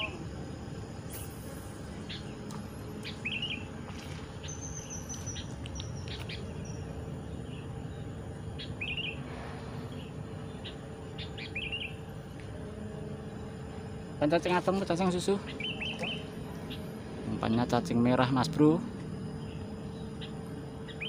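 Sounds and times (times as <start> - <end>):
bird warbled phrase: 15.0 - 16.3.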